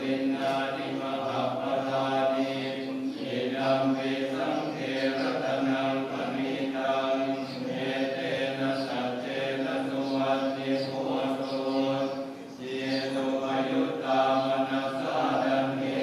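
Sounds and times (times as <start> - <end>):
men chanting in monotone: 0.0 - 16.0.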